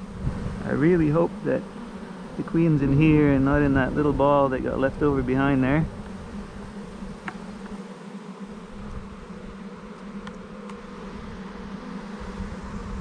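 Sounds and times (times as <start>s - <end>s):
bee swarm buzzing: 0.0s - 13.0s
faint ticks: 7.1s - 7.8s, 9.9s - 10.8s.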